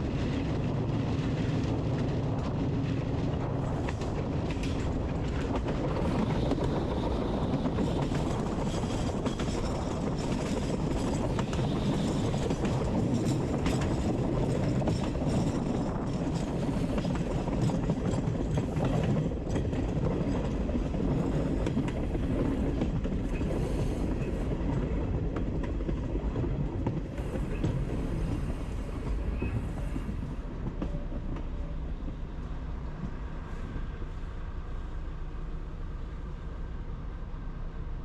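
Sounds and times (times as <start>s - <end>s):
train rumbling on rails: 0.0s - 38.0s
train wheel clicks: 3.8s - 33.2s.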